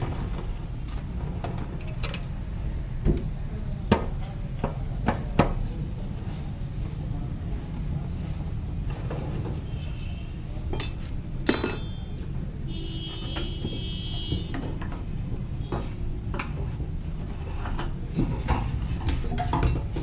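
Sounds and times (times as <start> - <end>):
metal parts clinking: 1.8 - 2.3, 10.7 - 12.3.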